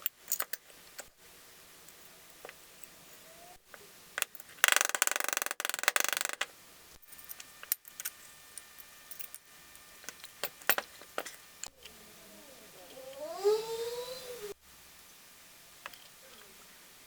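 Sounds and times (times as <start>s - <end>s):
tool clicks and taps: 4.2s - 6.5s.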